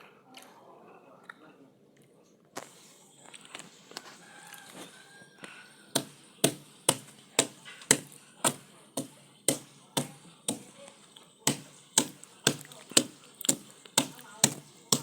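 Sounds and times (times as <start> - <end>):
hand tool striking wood: 5.9 - 10.8, 11.4 - 15.0.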